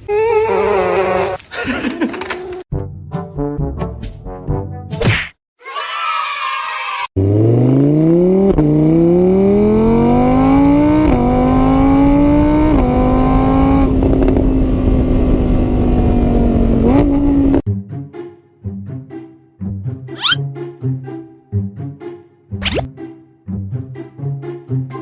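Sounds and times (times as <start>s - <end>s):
car engine accelerating: 7.2s - 17.6s.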